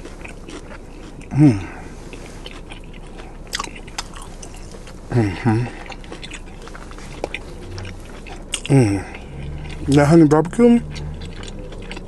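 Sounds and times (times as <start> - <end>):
close-up chewing with mouth smacks: 0.0 - 12.0
person humming mmm: 1.3 - 1.9, 5.1 - 5.9, 8.6 - 10.0.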